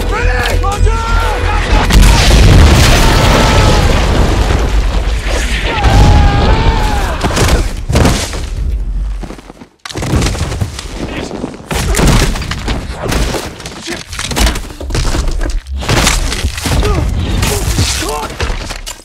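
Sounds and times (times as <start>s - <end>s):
crashing and splintering impacts: 1.8s - 8.6s, 11.7s - 19.0s.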